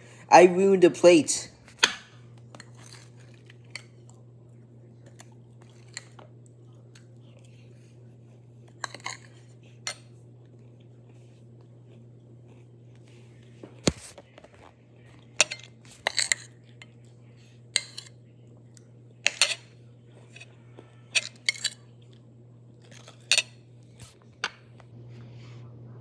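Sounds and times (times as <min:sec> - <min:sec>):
faint low hum: 0:00.0 - 0:26.0
cutlery scraping a plate: 0:01.8 - 0:03.9, 0:08.8 - 0:10.1, 0:15.4 - 0:17.0, 0:17.7 - 0:18.2, 0:19.2 - 0:21.8.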